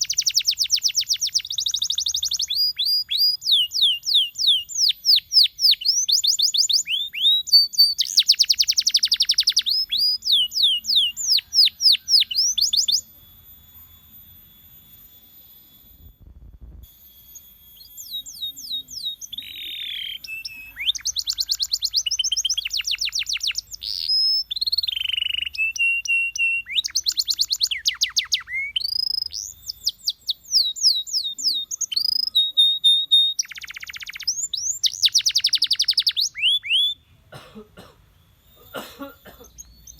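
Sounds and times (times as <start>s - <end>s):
canary singing trills: 0.0s - 37.3s, 38.0s - 39.9s.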